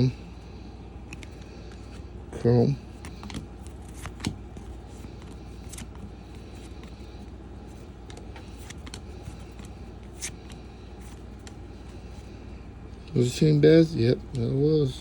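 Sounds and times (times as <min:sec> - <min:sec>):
low background hum: 0:00.0 - 0:15.0
cards clicking and snapping: 0:01.0 - 0:02.0, 0:02.9 - 0:11.9
trading cards flipped by hand: 0:01.0 - 0:02.1, 0:02.9 - 0:12.1.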